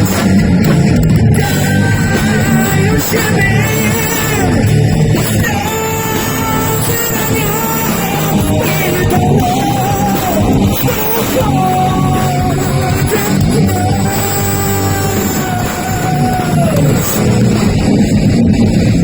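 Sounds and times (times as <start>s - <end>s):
heavy metal band playing: 0.0s - 19.0s.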